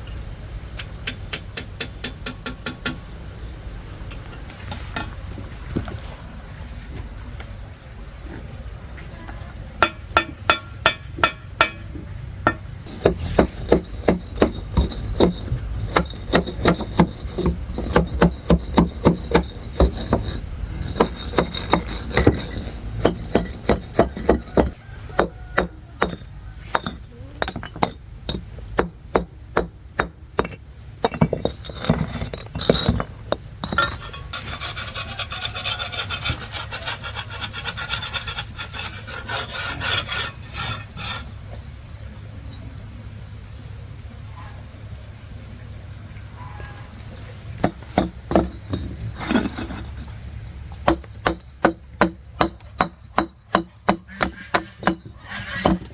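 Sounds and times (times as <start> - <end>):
sharp ringing knocks of hand tools: 9.8 - 12.7
rasping scrape: 12.5 - 41.4, 47.6 - 50.2, 50.8 - 55.9.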